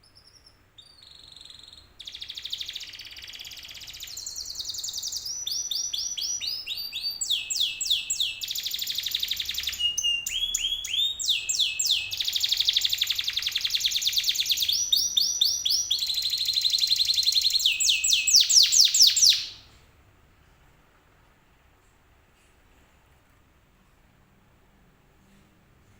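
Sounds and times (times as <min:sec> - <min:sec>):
canary singing trills: 0:00.0 - 0:19.7.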